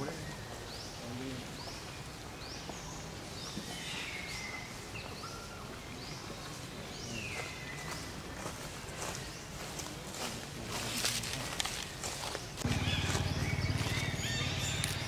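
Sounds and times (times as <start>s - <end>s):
outdoor background hiss: 0.0s - 7.4s
bird chirping: 0.0s - 15.0s.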